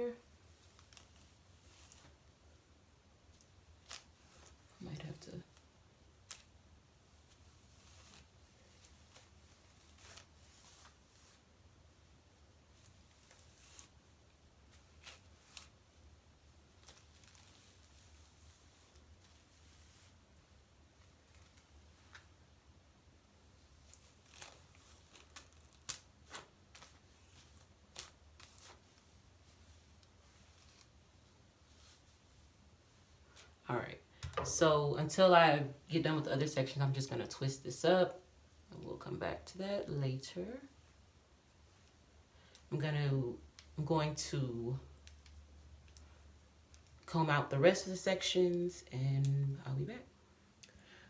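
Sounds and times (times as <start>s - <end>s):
brush swishing through wet hair: 0.2s - 2.6s, 3.2s - 11.5s, 12.7s - 15.8s, 16.4s - 20.3s, 23.5s - 33.6s.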